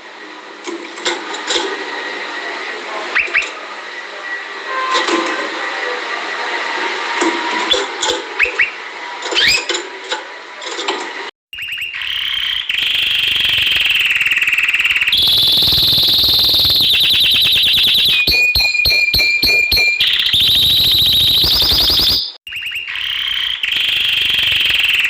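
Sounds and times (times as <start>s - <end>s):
canary singing: 3.2s - 3.5s, 8.4s - 8.8s, 11.6s - 25.0s.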